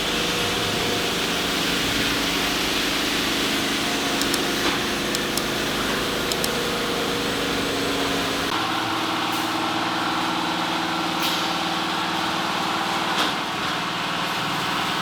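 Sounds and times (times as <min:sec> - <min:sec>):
mechanical hum and hiss: 0:00.0 - 0:15.0
faint clicks: 0:04.2 - 0:04.5.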